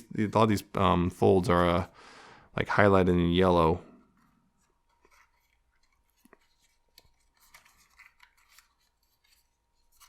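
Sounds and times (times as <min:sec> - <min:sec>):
card stock being folded: 0:04.6 - 0:10.0
paper rustles: 0:04.6 - 0:10.0.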